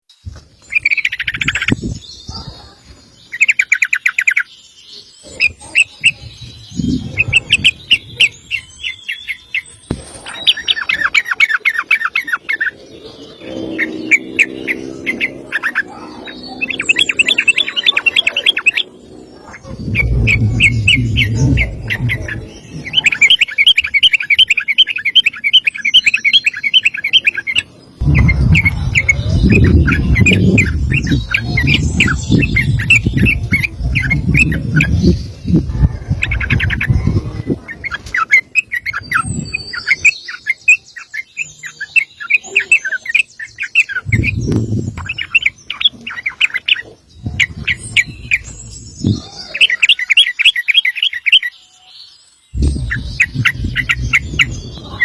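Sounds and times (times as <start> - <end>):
bird singing rattling runs: 5.1 - 51.5, 52.5 - 55.0
low rumble: 12.7 - 23.2, 28.0 - 37.9, 52.6 - 55.0.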